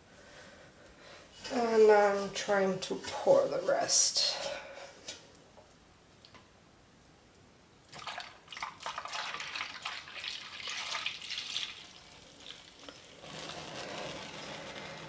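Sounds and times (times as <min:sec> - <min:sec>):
liquid pouring and splashing: 0:07.9 - 0:14.2
spatula scraping a pot: 0:13.2 - 0:15.0.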